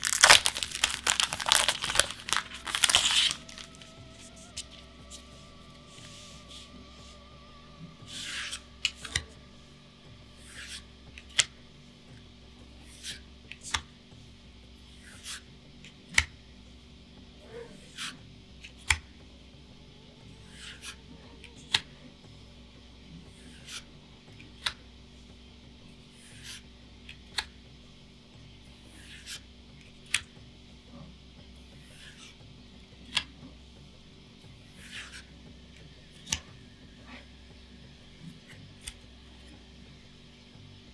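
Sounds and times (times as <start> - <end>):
cards sliding: 0.0 - 4.0
trading cards snapping: 0.0 - 4.0.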